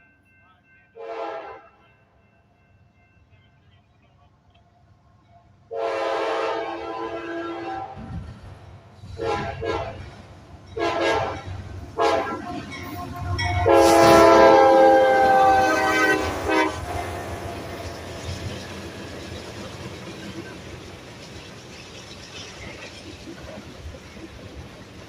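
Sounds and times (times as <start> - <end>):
locomotive air horn blasts: 1.0 - 1.8, 5.7 - 8.0, 9.2 - 10.0, 10.8 - 17.4
train rumbling: 1.1 - 25.0.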